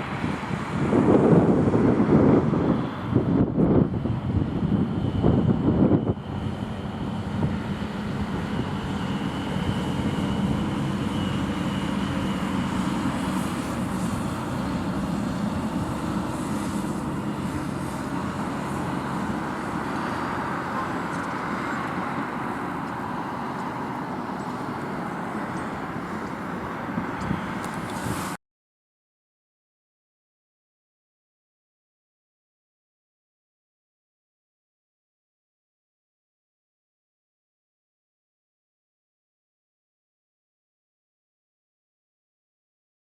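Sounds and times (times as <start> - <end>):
passing vehicles engine hum: 0.0 - 28.4
wind buffeting microphone: 0.0 - 28.4.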